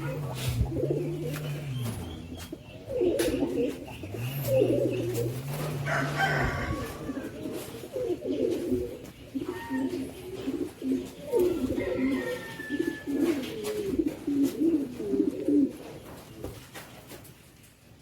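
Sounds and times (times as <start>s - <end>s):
birds calling in low wavering notes: 0.0s - 13.4s.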